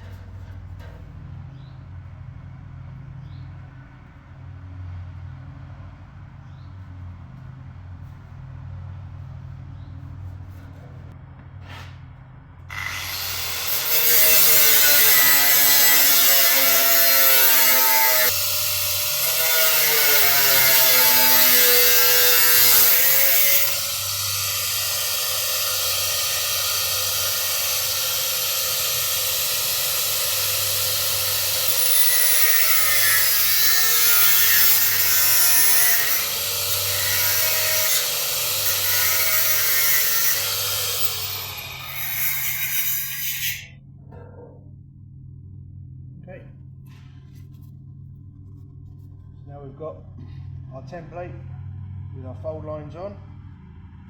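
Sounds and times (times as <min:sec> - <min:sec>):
power tool cutting: 0:12.7 - 0:43.7.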